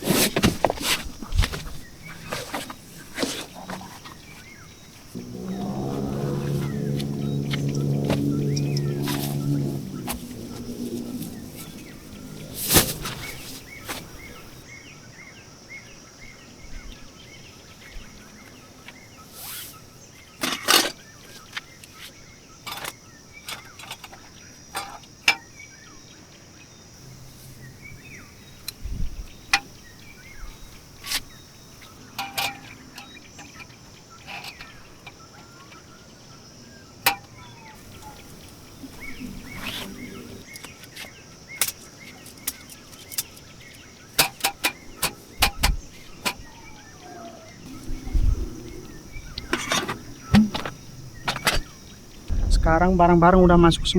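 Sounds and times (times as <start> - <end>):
camping gear clicks and knocks: 0.0 - 4.6, 6.8 - 14.6, 20.4 - 25.5, 30.9 - 35.9, 37.1 - 46.5, 49.4 - 51.8
faint bird chirps: 32.6 - 52.5.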